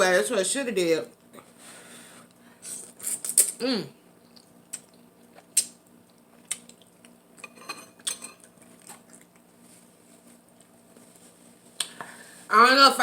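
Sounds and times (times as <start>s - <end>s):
utensils clinking against dish: 7.4s - 8.4s.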